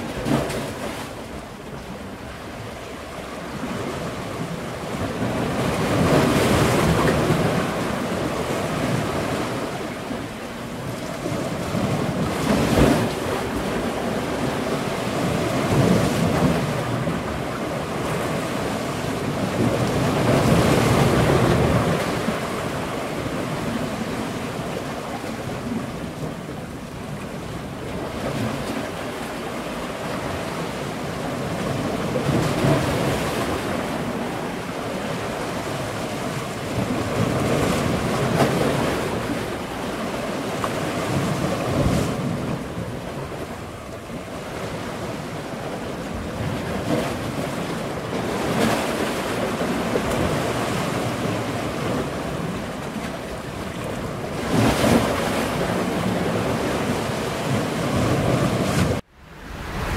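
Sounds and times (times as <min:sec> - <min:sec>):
water rushing past boat hull: 0:00.0 - 0:59.9
wind buffeting microphone: 0:53.6 - 0:59.9.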